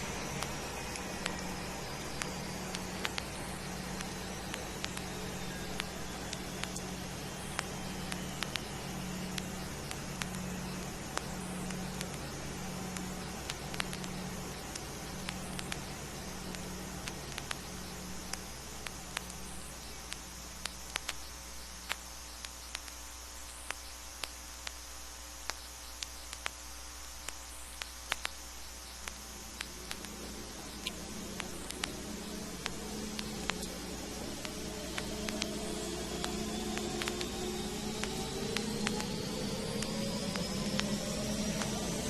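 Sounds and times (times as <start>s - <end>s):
low drone: 0.0s - 20.2s, 29.1s - 42.0s
vinyl clicks and crackle: 0.0s - 42.0s
vinyl hiss and hum: 0.0s - 42.0s.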